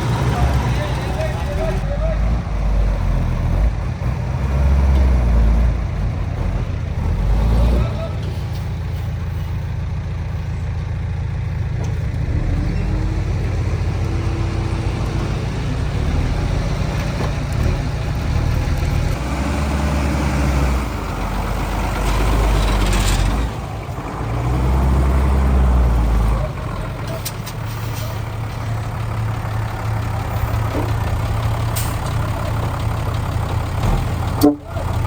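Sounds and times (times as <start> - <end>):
heavy diesel engine droning: 0.0 - 35.0.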